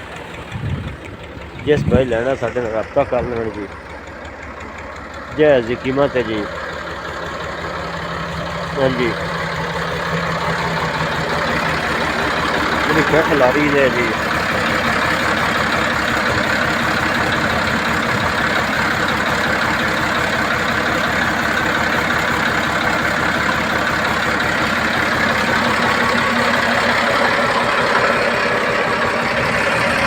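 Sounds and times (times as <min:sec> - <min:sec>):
tractor engine idling: 0:00.0 - 0:30.0.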